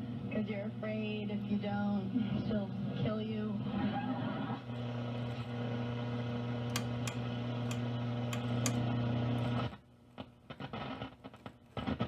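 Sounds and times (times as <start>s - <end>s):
radio static crackles: 6.7s - 12.0s.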